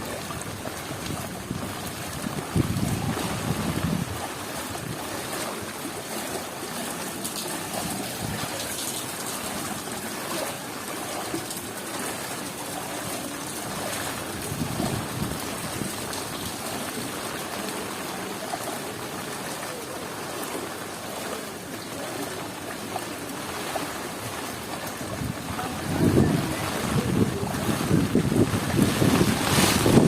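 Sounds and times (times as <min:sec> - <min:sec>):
wind buffeting microphone: 0:00.0 - 0:05.2, 0:13.6 - 0:16.6, 0:24.8 - 0:30.0
heavy rain falling: 0:00.0 - 0:30.0
water running and trickling: 0:00.0 - 0:30.0.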